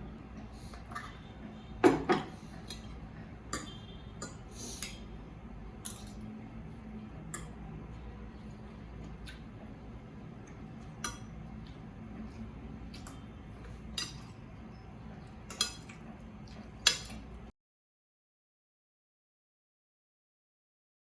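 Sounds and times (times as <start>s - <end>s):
low steady hum: 0.0s - 17.5s
dishes knocking: 1.8s - 2.4s.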